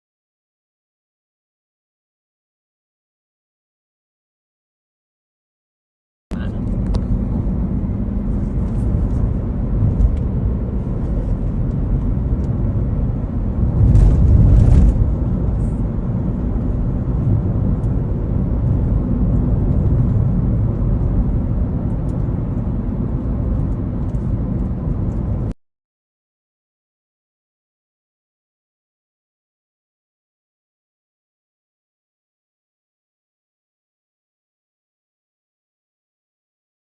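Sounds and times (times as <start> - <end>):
airliner engine and airflow rumble: 6.3 - 25.6.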